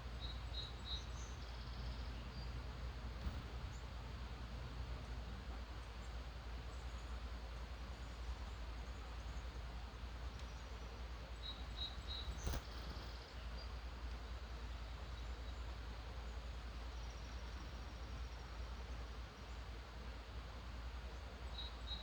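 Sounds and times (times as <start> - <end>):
distant birds chirping: 0.0 - 19.7
background hiss and rumble: 0.0 - 22.0
sharp click: 12.4 - 12.8.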